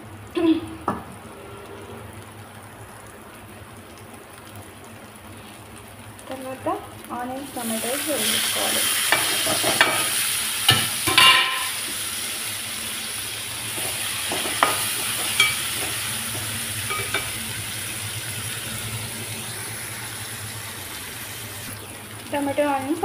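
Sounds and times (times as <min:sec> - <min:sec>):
onion and tomato sizzling: 0:00.0 - 0:23.0
spoon clinking against pan: 0:14.6 - 0:15.7, 0:16.9 - 0:17.3.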